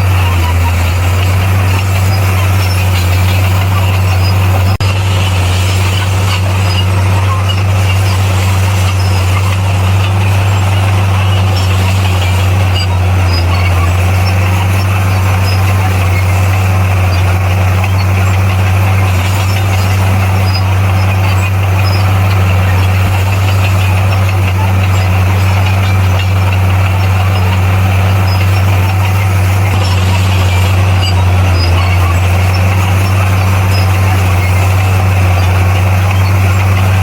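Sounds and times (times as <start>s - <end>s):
bulldozer diesel engine running: 0.0s - 37.0s.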